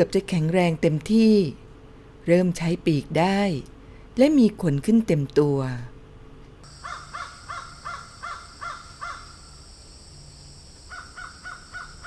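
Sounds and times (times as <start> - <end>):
outdoor ambience hiss: 0.0 - 12.0
bird cawing: 6.7 - 9.6, 10.9 - 12.0.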